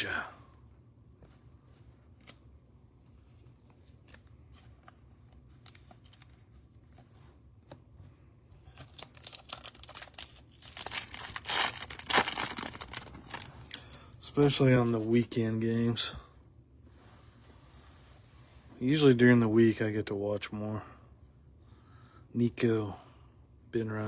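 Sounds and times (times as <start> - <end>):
foil card pack tearing open: 8.6 - 13.9.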